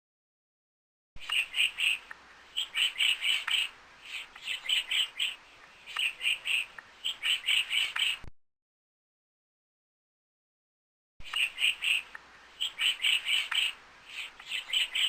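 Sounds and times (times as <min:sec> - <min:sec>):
bird chirping: 0:01.2 - 0:08.3, 0:11.2 - 0:15.0.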